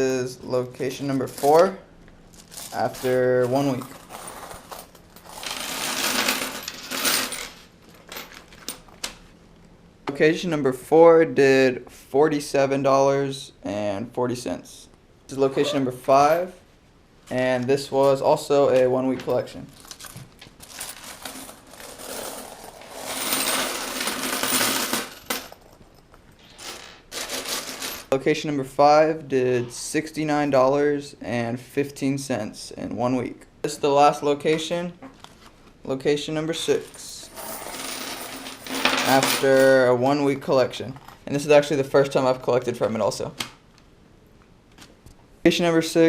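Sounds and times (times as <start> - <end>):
single coins clinking: 3.5 - 8.9, 20.7 - 28.1, 37.0 - 39.7
coins pouring and jingling: 3.8 - 8.3, 20.6 - 25.7, 26.4 - 28.1, 37.2 - 39.4.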